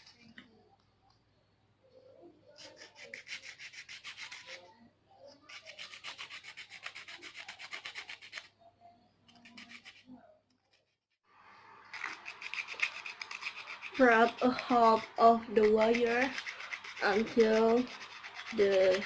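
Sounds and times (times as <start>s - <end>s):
sandpaper rubbing on wire: 2.6s - 4.6s, 5.4s - 8.5s, 9.3s - 11.0s, 11.9s - 19.0s.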